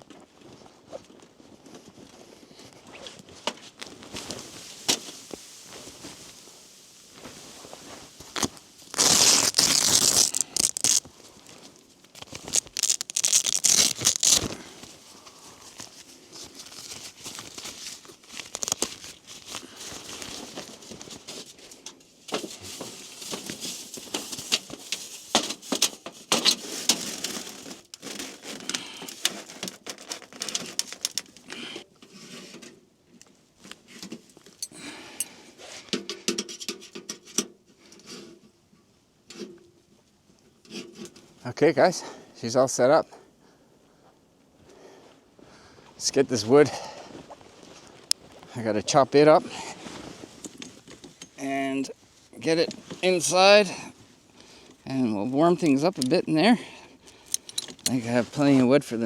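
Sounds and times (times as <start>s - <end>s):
tent fabric rustling: 0.0s - 32.8s, 44.9s - 55.8s
clicks and crunches: 8.2s - 31.8s, 57.0s - 58.0s.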